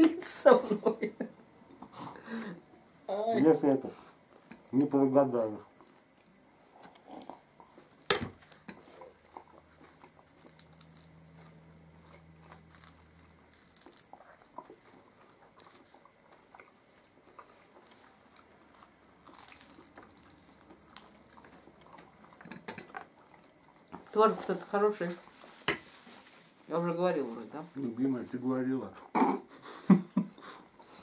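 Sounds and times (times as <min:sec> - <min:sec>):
chewing flaky pastry: 0:05.8 - 0:26.2.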